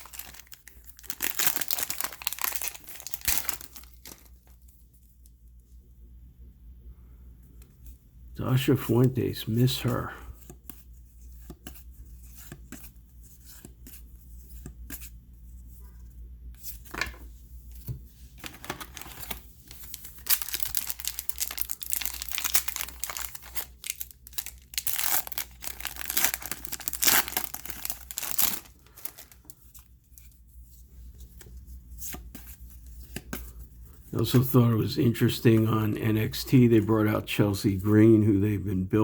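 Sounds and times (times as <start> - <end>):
wrapper tearing and crinkling: 0.0 - 4.6, 18.4 - 29.5.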